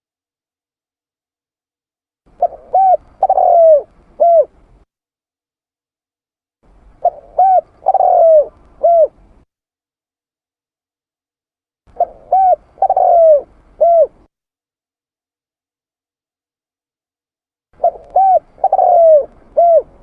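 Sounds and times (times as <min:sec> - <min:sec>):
dove cooing: 0:02.3 - 0:04.7, 0:07.0 - 0:09.4, 0:11.9 - 0:14.3, 0:17.8 - 0:20.0.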